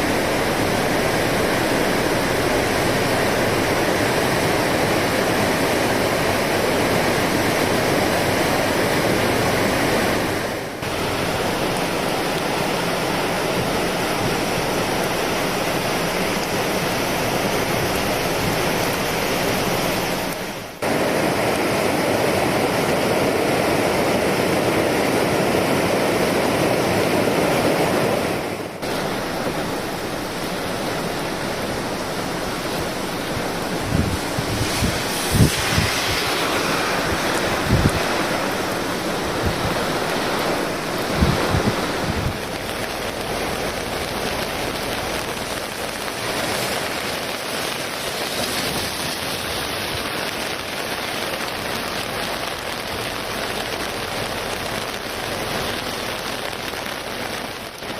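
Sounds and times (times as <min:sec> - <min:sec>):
river water roaring: 0:00.0 - 0:57.9.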